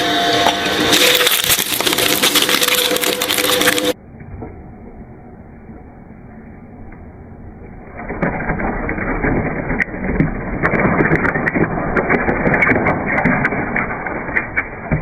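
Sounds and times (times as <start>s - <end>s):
shredder humming: 0.0s - 4.0s.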